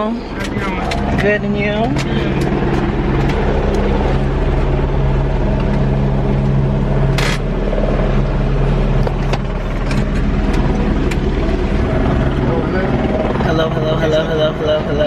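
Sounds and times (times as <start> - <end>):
helicopter engine and rotor drone: 0.0 - 15.0.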